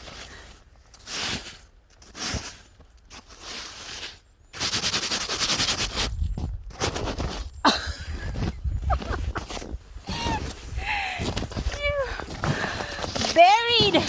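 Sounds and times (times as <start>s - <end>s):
snow crunching and swishing: 6.8s - 14.0s.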